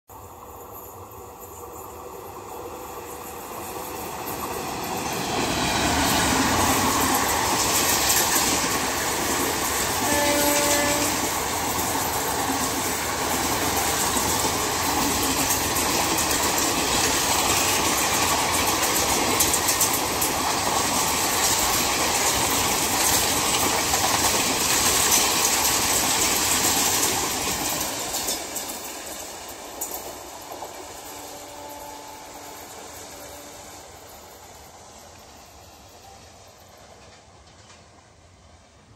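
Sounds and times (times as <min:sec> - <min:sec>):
train wheels clattering on rails: 0:00.3 - 0:38.6
train horn blast: 0:10.0 - 0:11.4, 0:31.0 - 0:33.9.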